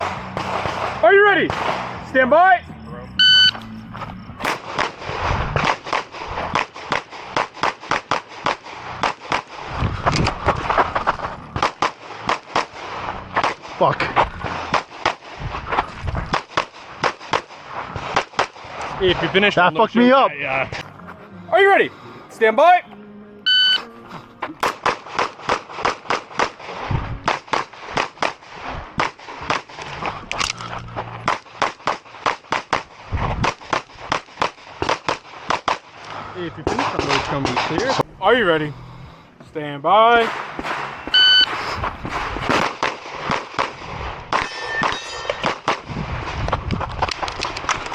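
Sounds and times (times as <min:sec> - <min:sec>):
rapid pistol fire: 0:00.0 - 0:02.0, 0:04.4 - 0:09.8, 0:11.6 - 0:13.9, 0:14.5 - 0:15.5, 0:16.2 - 0:18.8, 0:24.6 - 0:29.8, 0:31.2 - 0:36.0, 0:40.2 - 0:44.4.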